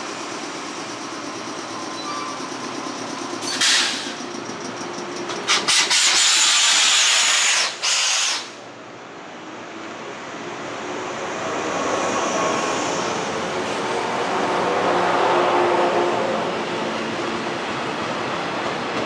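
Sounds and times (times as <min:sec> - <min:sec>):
train pulling away: 0:00.0 - 0:08.6
air brakes hissing: 0:03.4 - 0:04.3, 0:05.4 - 0:08.6.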